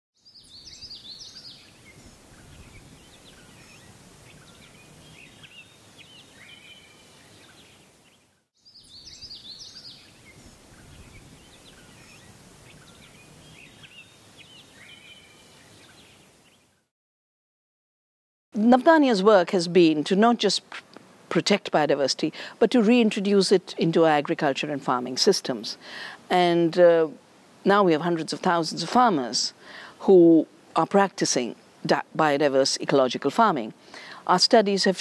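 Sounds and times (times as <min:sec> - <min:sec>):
birds chirping and whistling: 0:00.2 - 0:07.8, 0:08.6 - 0:16.2
soft background hiss: 0:18.6 - 0:35.0.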